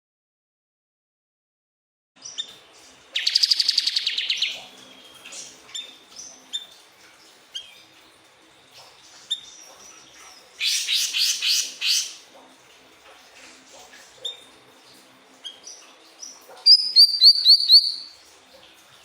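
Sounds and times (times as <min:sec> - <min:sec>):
bird trilling: 0:03.2 - 0:04.5, 0:10.6 - 0:12.2, 0:16.7 - 0:18.1
bird chirps: 0:03.2 - 0:04.6, 0:16.7 - 0:18.1.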